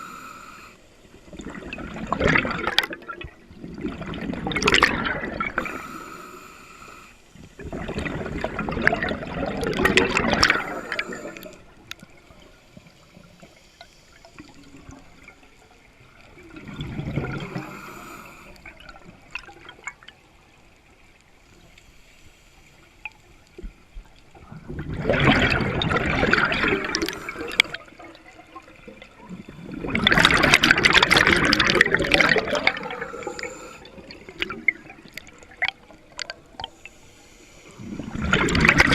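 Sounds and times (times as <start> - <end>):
underwater bubbles gurgling: 0.0 - 21.8, 22.8 - 38.9.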